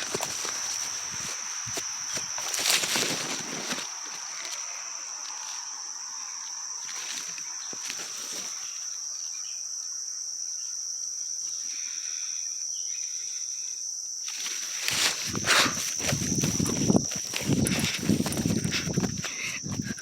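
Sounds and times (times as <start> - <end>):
crickets chirping: 0.0 - 20.0
faint rustles of movement: 14.3 - 20.0.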